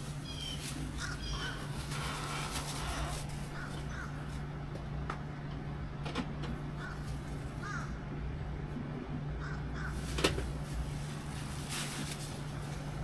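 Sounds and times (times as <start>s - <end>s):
steady low hum: 0.0s - 13.0s
crows cawing: 0.2s - 2.2s, 3.4s - 4.3s, 6.8s - 8.0s, 9.4s - 10.1s.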